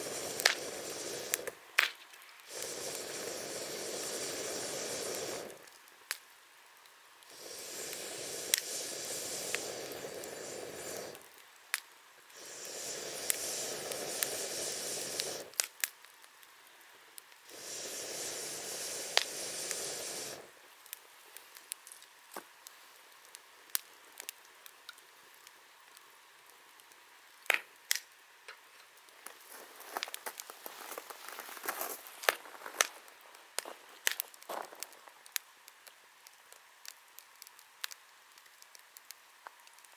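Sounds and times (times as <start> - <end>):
long rushing hisses: 0.0 - 5.8, 7.2 - 11.4, 12.2 - 15.6, 17.4 - 21.8, 29.4 - 35.1
campfire crackling and popping: 0.0 - 39.9.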